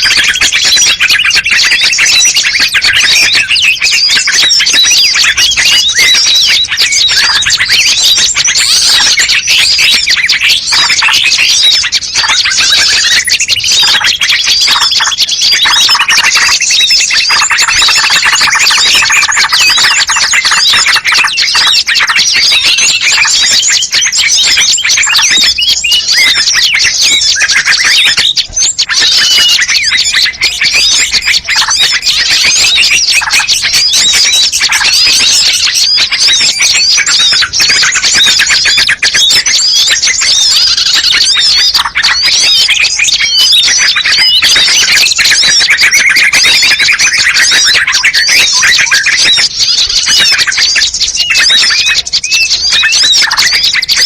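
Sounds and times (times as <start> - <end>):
songbirds chirping and twittering: 0.0 - 54.0.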